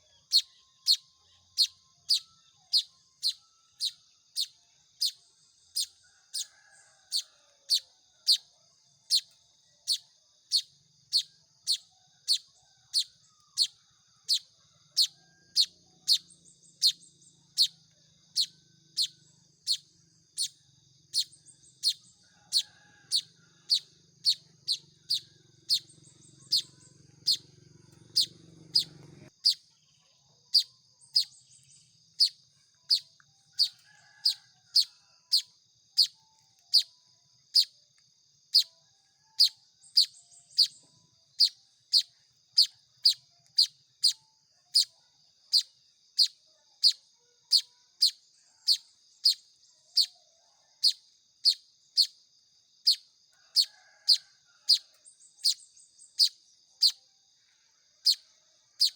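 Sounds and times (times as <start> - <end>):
bird chick cheeping: 0.0 - 37.8, 38.5 - 52.2, 52.8 - 57.0, 58.0 - 58.9
faint low hum: 23.6 - 29.3.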